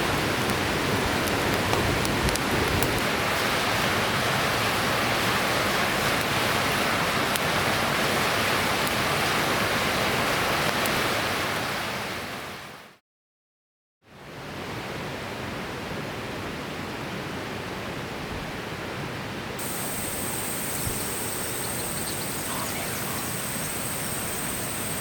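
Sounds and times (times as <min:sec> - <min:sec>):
river water rushing: 0:00.0 - 0:12.7, 0:19.6 - 0:25.0.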